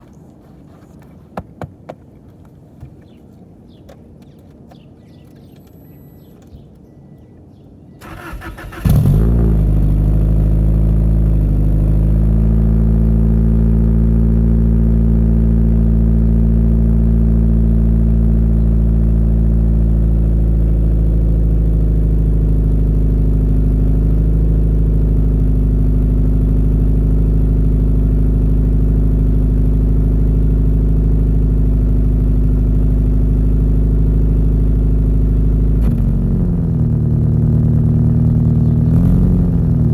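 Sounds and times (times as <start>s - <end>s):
car engine starting and idling: 7.9s - 39.9s.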